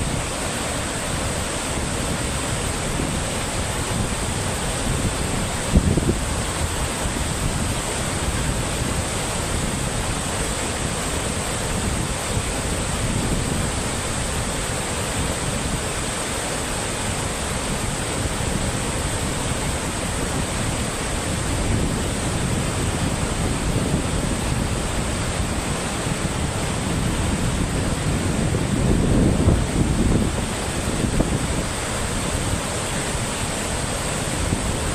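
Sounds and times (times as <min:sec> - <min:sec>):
water rushing: 0:00.0 - 0:34.9
wind buffeting microphone: 0:00.0 - 0:34.9.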